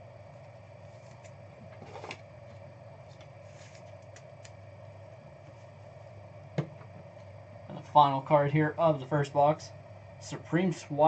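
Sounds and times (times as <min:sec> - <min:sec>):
room hum: 0:00.0 - 0:11.0
trading cards rustling: 0:03.1 - 0:04.5.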